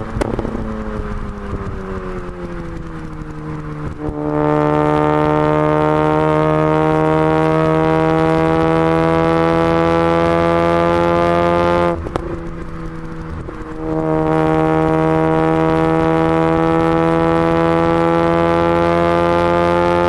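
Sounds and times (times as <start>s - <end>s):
exhaust pops: 0.0s - 6.4s, 10.2s - 18.2s
rotary engine droning at high revs: 0.0s - 20.0s.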